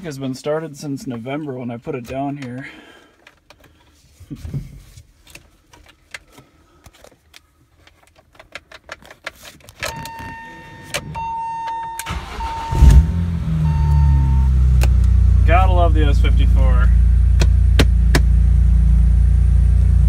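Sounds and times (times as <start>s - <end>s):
car engine cranking and starting: 9.8s - 20.0s.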